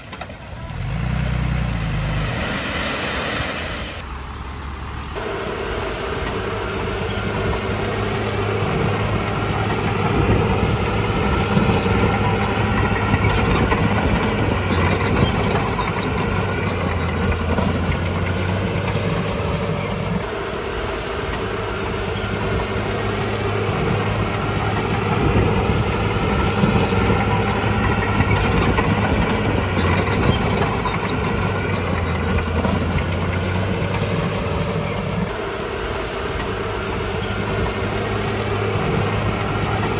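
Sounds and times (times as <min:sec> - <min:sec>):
bulldozer diesel engine: 0:00.0 - 0:39.9
clanking: 0:06.3 - 0:35.4.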